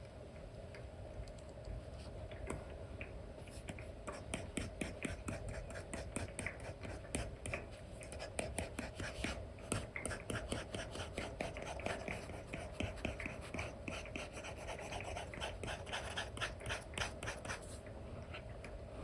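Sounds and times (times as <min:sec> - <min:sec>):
stylus scratching and tapping screen: 0:03.5 - 0:17.8.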